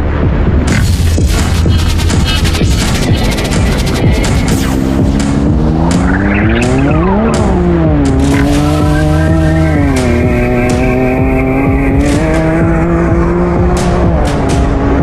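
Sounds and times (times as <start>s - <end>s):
utility vehicle engine running hard: 0.0s - 15.0s
sharp clicks: 0.7s - 11.1s.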